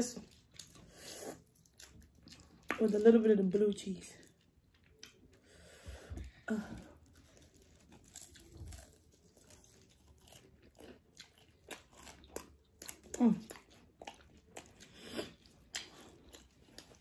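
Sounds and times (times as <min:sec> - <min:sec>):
person biting and chewing: 0:07.0 - 0:17.0
small crunches: 0:07.1 - 0:12.4.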